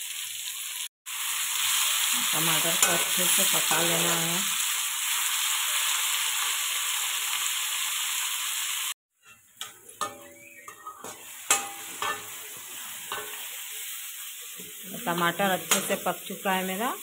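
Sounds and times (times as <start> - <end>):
tomatoes sizzling in hot oil: 0.0 - 17.0
spatula scraping and clinking pan: 2.7 - 4.2, 9.2 - 13.6.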